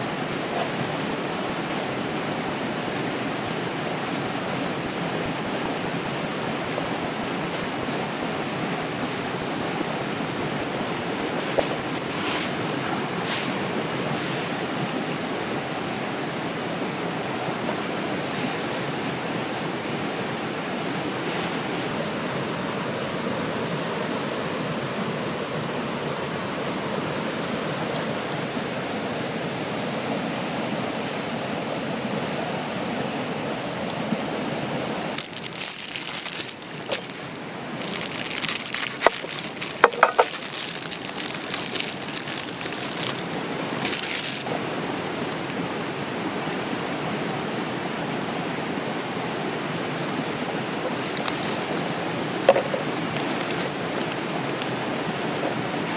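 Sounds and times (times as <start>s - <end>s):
dense crackling: 0.0s - 12.0s, 35.2s - 44.5s
river rushing: 0.0s - 17.3s, 33.2s - 55.9s.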